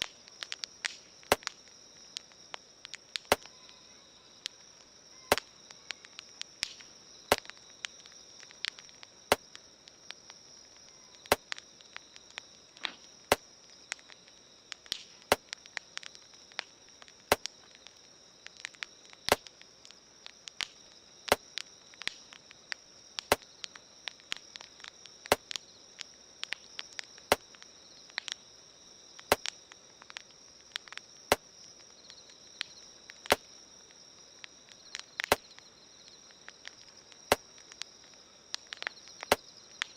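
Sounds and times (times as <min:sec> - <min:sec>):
burning wood popping and snapping: 0:00.0 - 0:39.9
steady high hiss: 0:00.0 - 0:39.9.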